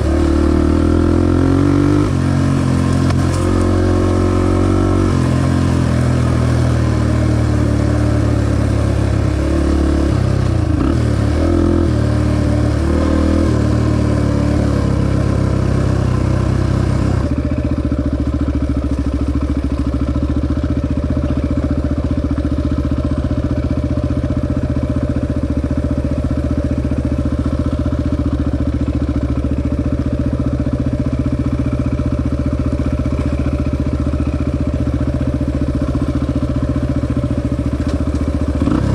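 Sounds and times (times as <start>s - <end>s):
dirt bike engine revving: 0.0s - 17.4s, 33.2s - 38.9s.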